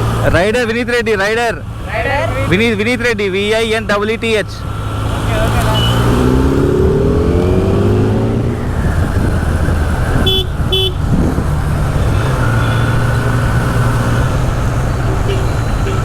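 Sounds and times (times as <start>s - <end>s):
motorcycle engine: 0.0s - 16.0s
wind and road noise: 0.0s - 16.0s
horn beeps: 5.5s - 6.4s, 10.2s - 11.1s, 12.0s - 13.6s, 15.0s - 16.0s.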